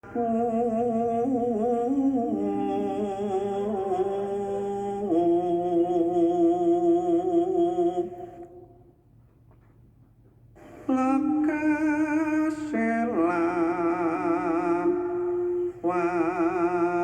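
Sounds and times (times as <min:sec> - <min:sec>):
person humming a slow melody: 0:00.0 - 0:08.5, 0:14.0 - 0:17.0.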